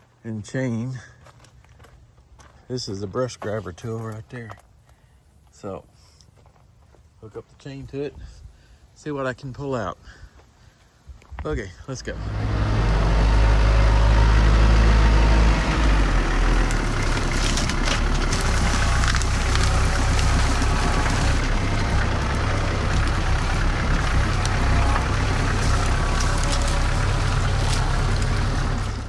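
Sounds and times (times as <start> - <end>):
tractor engine running: 12.1 - 29.0.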